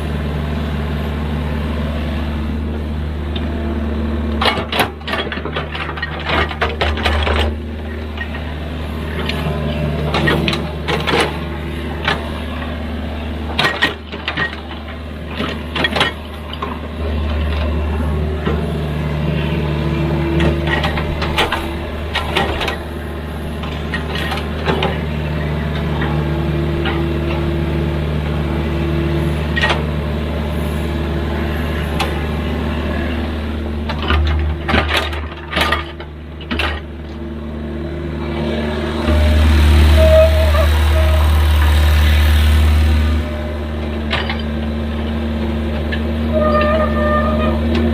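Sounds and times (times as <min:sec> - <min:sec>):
excavator diesel engine: 0:00.0 - 0:47.9.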